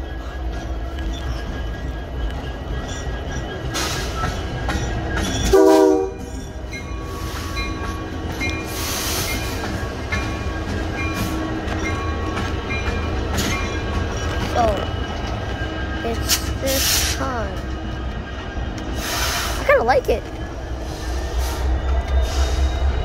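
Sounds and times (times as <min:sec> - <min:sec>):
high wheel squeals: 0:00.0 - 0:16.0
diesel locomotives rumbling past: 0:00.0 - 0:23.0
train horn blast: 0:05.5 - 0:06.2.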